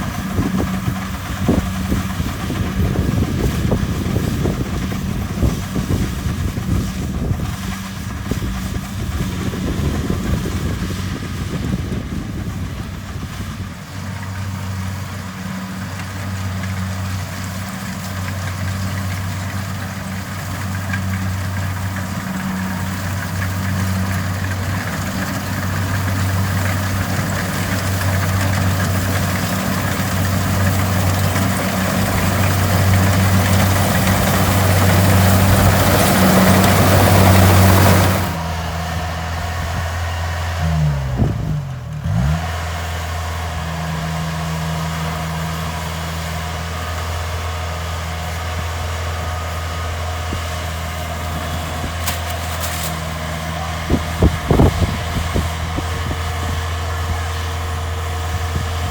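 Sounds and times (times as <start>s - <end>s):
combine harvester diesel engine: 0.0s - 58.9s
loud rushing noise: 26.2s - 39.8s.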